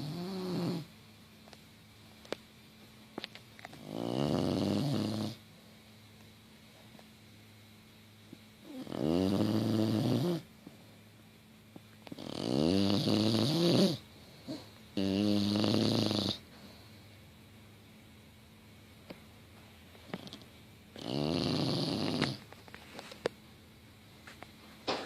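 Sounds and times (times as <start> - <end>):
dog snoring loudly: 0.0 - 0.9, 3.7 - 5.4, 8.6 - 10.5, 12.1 - 16.5, 20.1 - 22.4.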